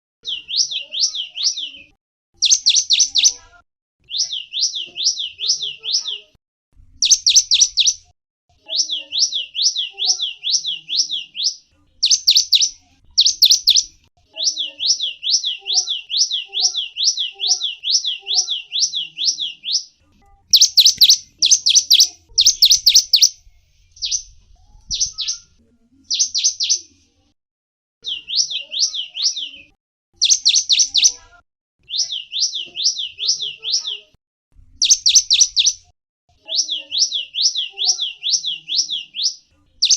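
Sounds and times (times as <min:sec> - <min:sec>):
songbird singing high trills: 0:00.2 - 0:03.4, 0:07.0 - 0:08.0, 0:08.7 - 0:19.9, 0:20.5 - 0:23.4, 0:30.2 - 0:31.1, 0:34.8 - 0:35.8, 0:36.5 - 0:39.9.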